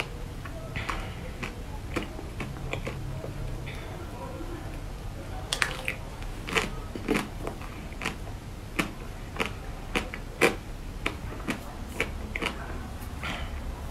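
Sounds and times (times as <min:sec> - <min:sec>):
crunchy chewing: 0:00.0 - 0:03.9, 0:05.5 - 0:13.7.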